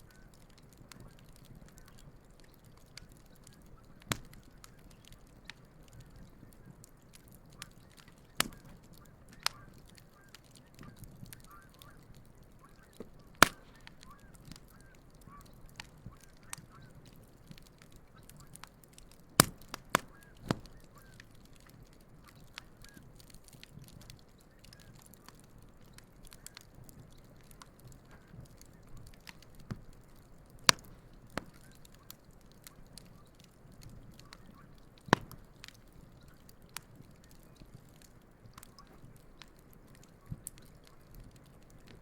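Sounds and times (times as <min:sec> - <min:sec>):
campfire crackling and popping: 0:00.0 - 0:42.0
distant geese honking: 0:12.6 - 0:17.0.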